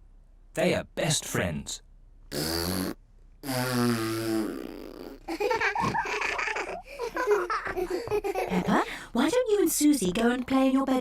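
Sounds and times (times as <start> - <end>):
buzzing fart-like sound effect: 2.3 - 5.3
cartoon voices giggling: 5.2 - 8.7.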